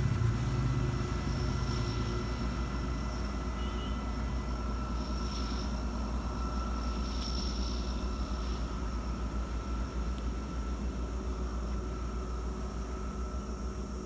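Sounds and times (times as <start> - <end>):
distant freight train rumble: 0.0 - 14.0.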